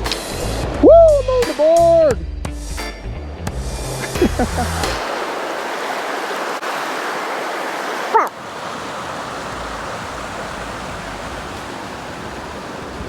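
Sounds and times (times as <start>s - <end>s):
creek water rushing: 3.8s - 13.0s.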